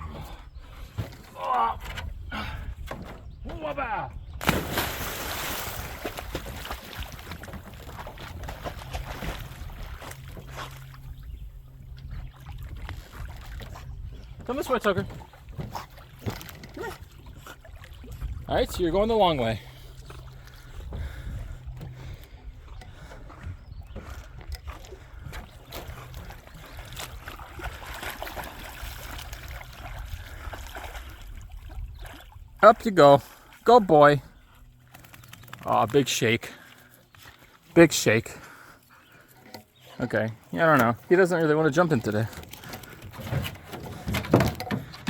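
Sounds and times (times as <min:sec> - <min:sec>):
lake water splashing and lapping: 0:00.0 - 0:45.0
water splashing: 0:04.4 - 0:11.1, 0:24.0 - 0:34.2.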